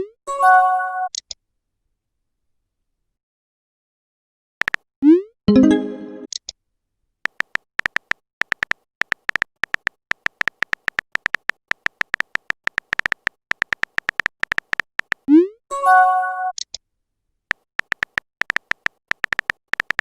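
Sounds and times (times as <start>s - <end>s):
phone keyboard typing clicks: 4.6s - 4.9s, 7.2s - 15.3s, 17.5s - 20.0s
message sent notification chime: 5.5s - 6.3s.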